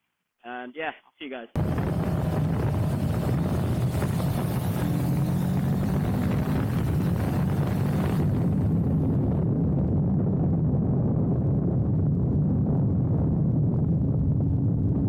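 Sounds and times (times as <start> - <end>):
motorcycle engine running: 1.6 - 9.6
wind rushing over microphone: 1.6 - 15.0.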